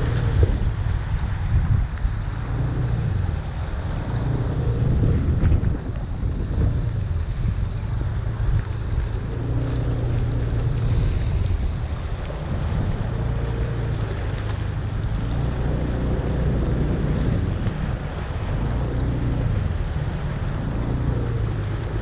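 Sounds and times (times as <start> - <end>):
floodwater rumbling: 0.0 - 22.0
vehicle engines running: 0.0 - 22.0
wind buffeting microphone: 0.0 - 22.0.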